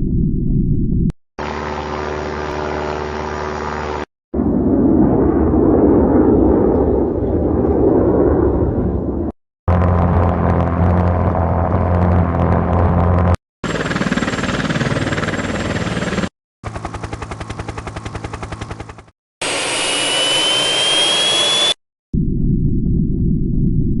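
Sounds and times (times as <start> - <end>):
jet engine rumble: 0.0 - 13.4
high engine whine: 1.4 - 14.1, 16.7 - 21.8
rushing jet engine noise: 18.6 - 21.8.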